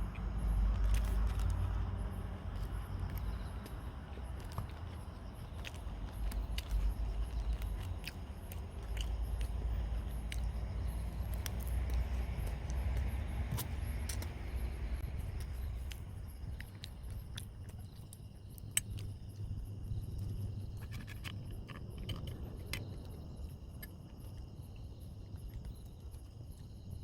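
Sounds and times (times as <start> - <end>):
insects chirring: 0.0 - 27.0
person eating crunchy food: 2.5 - 12.8.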